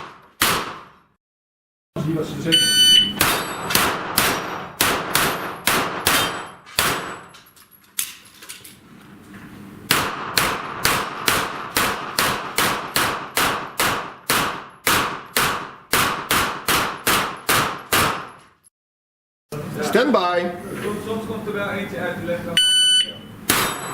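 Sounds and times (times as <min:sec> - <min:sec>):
gunshots: 0:00.0 - 0:01.1, 0:03.1 - 0:07.2, 0:09.9 - 0:18.4
steel targets ringing and clanging: 0:02.6 - 0:03.8, 0:04.4 - 0:07.6, 0:23.5 - 0:23.9.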